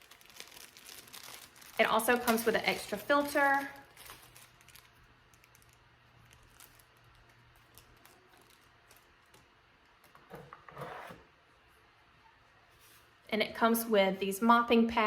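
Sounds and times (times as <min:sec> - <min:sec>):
packaging rustle: 0:00.0 - 0:10.3.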